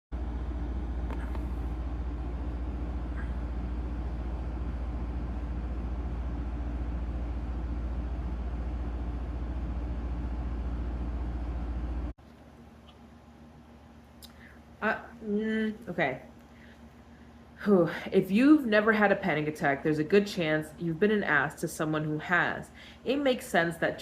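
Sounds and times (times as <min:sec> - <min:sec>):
steady low rumble: 0:00.1 - 0:12.2.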